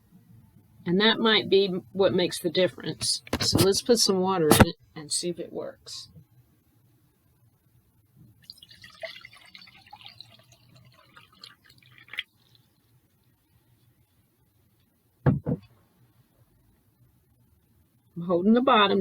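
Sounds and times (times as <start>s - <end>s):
water poured into a glass: 8.4s - 12.8s
loud short knocks: 15.2s - 15.7s.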